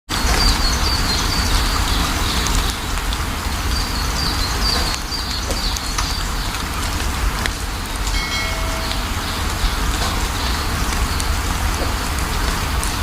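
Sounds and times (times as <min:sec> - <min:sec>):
steady rain falling: 0:00.1 - 0:13.0
bird chirping: 0:08.2 - 0:11.4.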